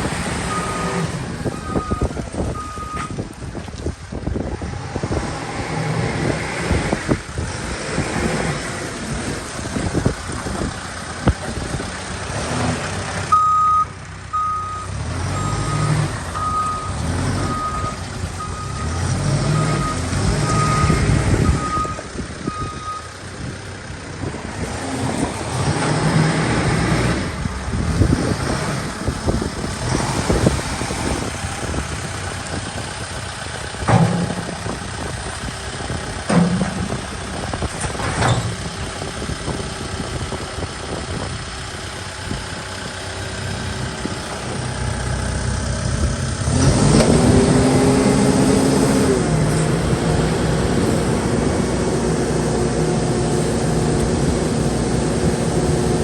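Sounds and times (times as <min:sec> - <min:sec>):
diesel engine revving: 0:00.0 - 0:56.0
reversing alarm beeps: 0:00.5 - 0:03.2, 0:13.3 - 0:23.1.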